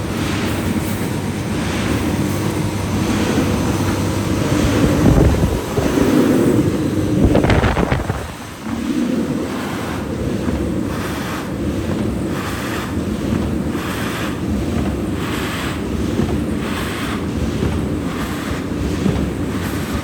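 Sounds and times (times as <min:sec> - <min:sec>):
machine mechanical rumble: 0:00.0 - 0:12.4.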